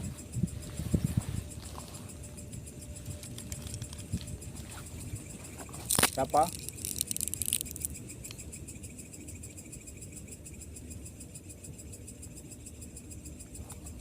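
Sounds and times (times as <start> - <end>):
rustle: 0.0 - 8.4
crickets chirping: 0.0 - 14.0
low background rumble: 0.0 - 14.0.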